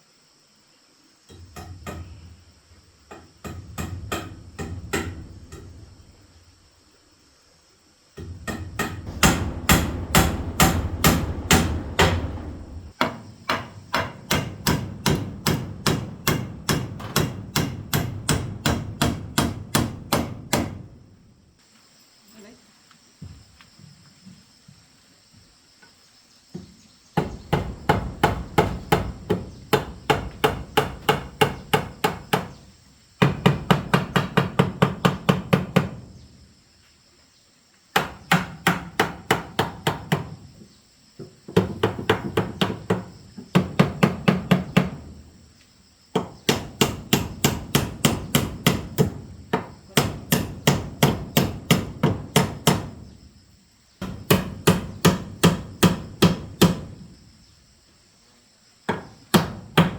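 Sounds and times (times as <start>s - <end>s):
hammer blows: 8.2s - 21.0s, 27.2s - 32.5s.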